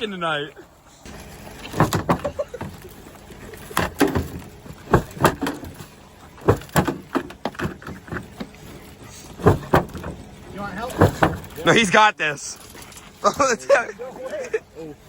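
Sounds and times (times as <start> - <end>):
tools banging on metal: 1.2 - 11.8.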